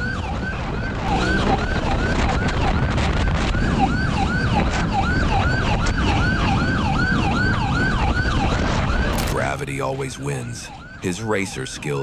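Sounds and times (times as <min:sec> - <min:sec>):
heavy wind: 0:00.0 - 0:12.0
police siren yelping: 0:00.0 - 0:12.0.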